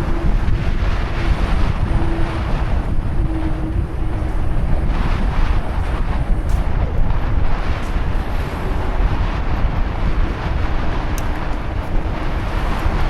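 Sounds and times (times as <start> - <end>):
bicycle rolling noise: 0.0 - 13.0
wind buffeting microphone: 0.0 - 13.0.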